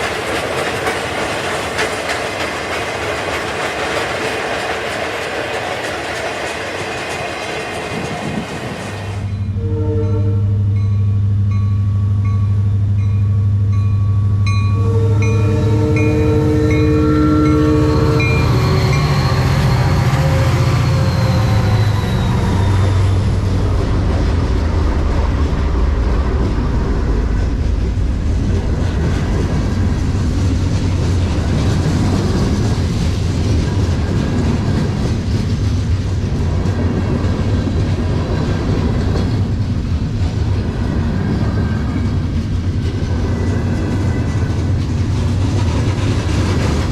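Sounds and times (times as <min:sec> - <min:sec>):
train wheels rumbling on rail: 0:00.0 - 0:46.9
locomotive horn: 0:09.2 - 0:10.8, 0:14.7 - 0:23.2.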